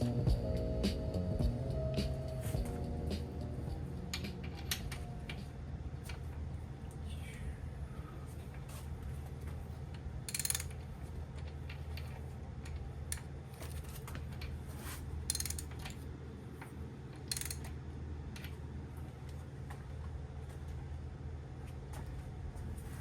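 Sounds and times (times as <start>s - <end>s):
steady low hum: 0.0s - 23.0s
ratchet wrench clicking: 10.3s - 10.9s, 15.3s - 16.0s, 17.2s - 17.8s.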